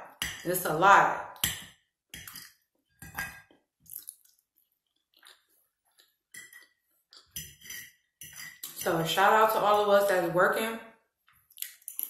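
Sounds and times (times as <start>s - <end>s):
person chewing food: 2.5s - 7.6s.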